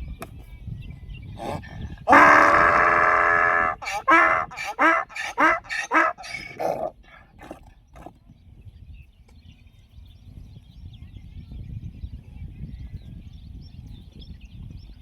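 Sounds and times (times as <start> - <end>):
donkey braying: 1.4 - 8.1.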